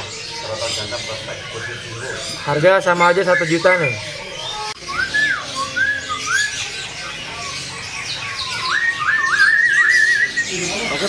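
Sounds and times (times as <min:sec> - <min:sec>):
bird singing whistled notes: 0:00.0 - 0:11.0
caged birds chirping faintly: 0:00.0 - 0:11.0.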